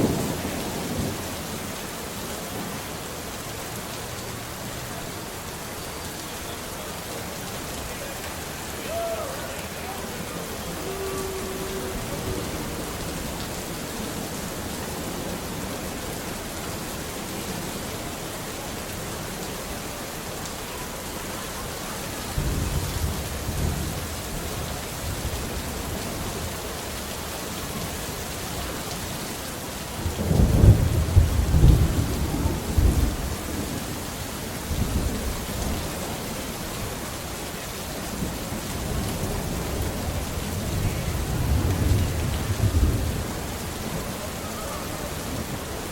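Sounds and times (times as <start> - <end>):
steady rain: 0.0 - 45.9
rolling thunder: 30.0 - 34.0, 38.2 - 45.9.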